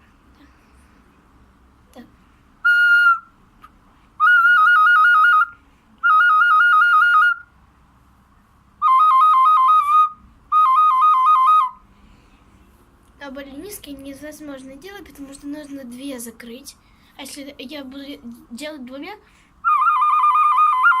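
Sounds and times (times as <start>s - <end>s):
small whistle pipe trilling: 2.6s - 3.3s, 4.2s - 7.5s, 8.8s - 11.8s, 19.6s - 21.0s.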